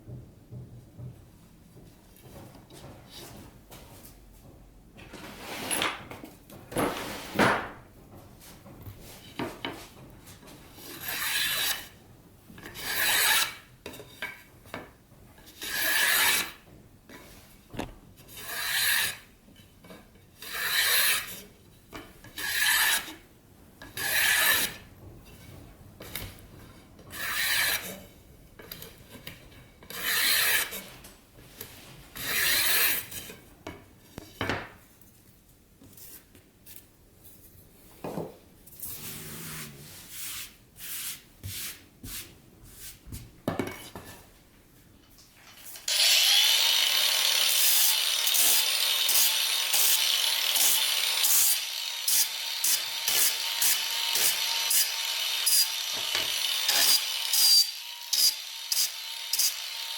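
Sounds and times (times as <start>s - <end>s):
rubbing strokes on wood: 38.8s - 43.0s
power tool whining: 45.9s - 59.9s.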